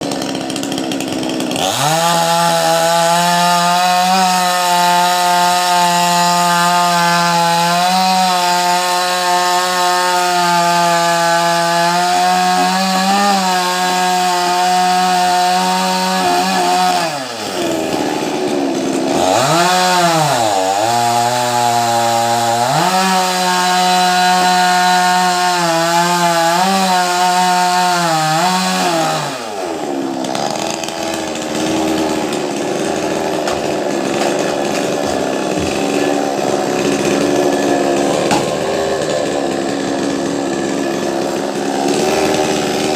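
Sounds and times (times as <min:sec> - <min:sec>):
chainsaw cutting wood: 0:00.0 - 0:42.9.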